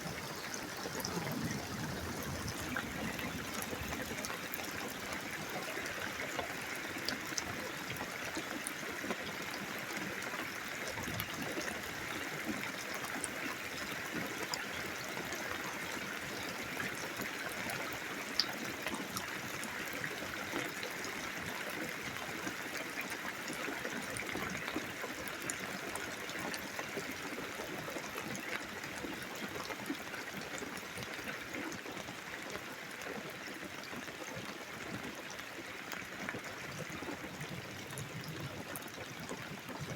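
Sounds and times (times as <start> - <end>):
steady rain hiss: 0.0 - 8.4.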